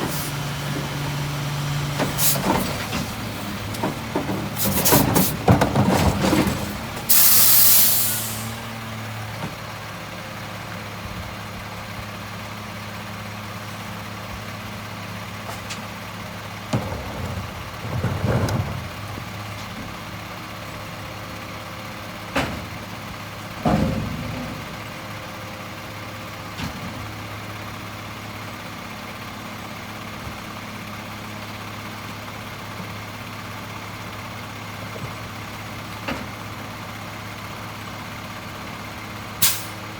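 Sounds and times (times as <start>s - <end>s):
clunks and bangs: 0.0s - 7.2s, 15.4s - 20.3s, 22.2s - 25.7s
diesel engine idling: 0.0s - 39.9s
air brake hiss: 7.1s - 8.6s, 39.4s - 39.8s.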